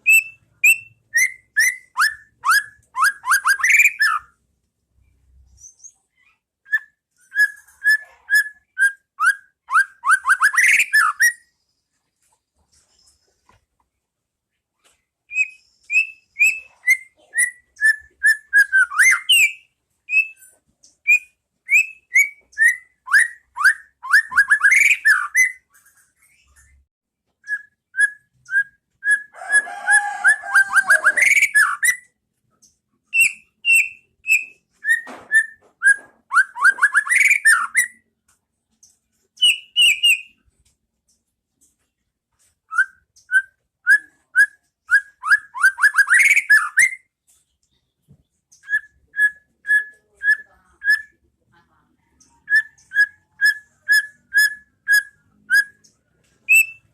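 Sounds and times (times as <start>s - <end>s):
bird singing whistled notes: 0.0s - 4.4s, 6.7s - 11.5s, 15.3s - 20.4s, 21.0s - 25.6s, 27.4s - 29.3s, 33.1s - 38.0s, 39.4s - 40.4s, 42.7s - 47.1s, 52.4s - 56.9s.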